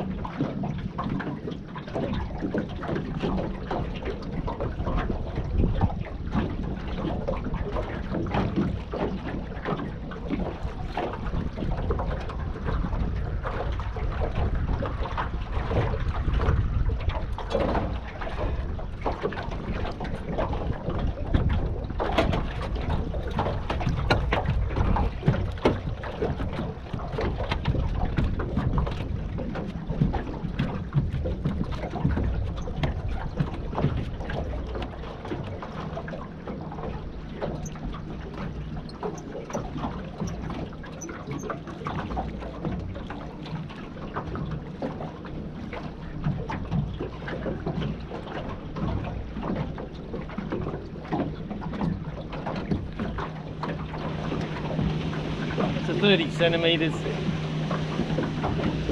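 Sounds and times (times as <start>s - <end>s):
wind noise on microphone: 2.0s - 34.5s.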